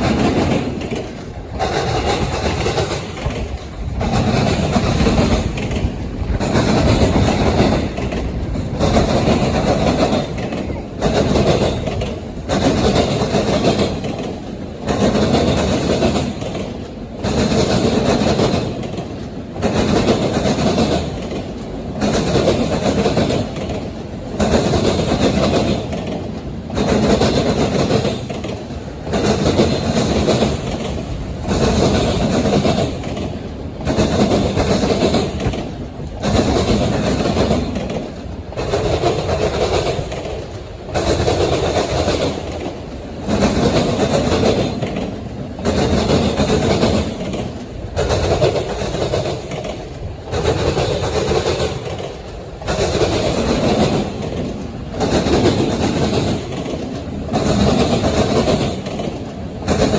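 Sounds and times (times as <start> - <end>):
train wheels clattering over rail joints: 0.0 - 59.9.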